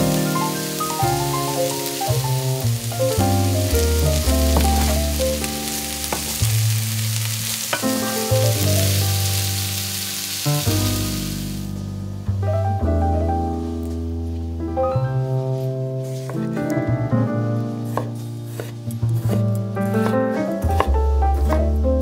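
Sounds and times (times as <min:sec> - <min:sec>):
background music with bass line: 0:00.0 - 0:06.9
vegetables sizzling in a frying pan: 0:00.0 - 0:11.8, 0:16.0 - 0:16.4, 0:17.6 - 0:18.8
wooden spatula stirring: 0:16.0 - 0:16.5, 0:17.8 - 0:20.9.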